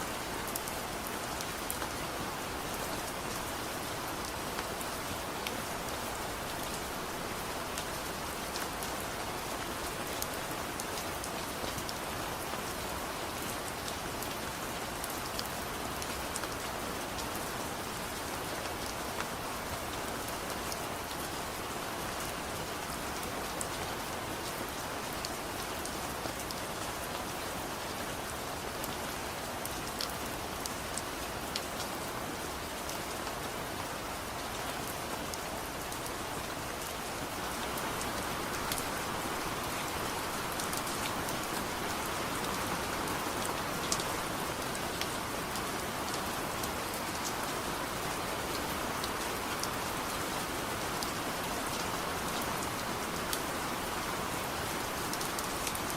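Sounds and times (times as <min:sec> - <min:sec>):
soft rain hiss: 0:00.0 - 0:55.9
faint raindrop ticks: 0:37.5 - 0:47.6, 0:54.9 - 0:55.9.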